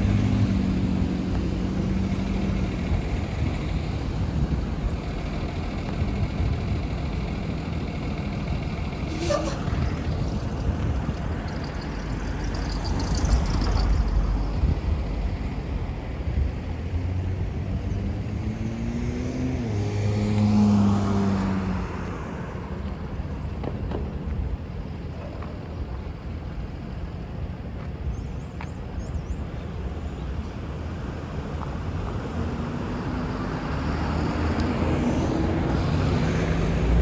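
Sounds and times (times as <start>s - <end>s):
steady traffic noise: 0.0s - 37.0s
vehicle engine accelerating past: 17.0s - 22.4s.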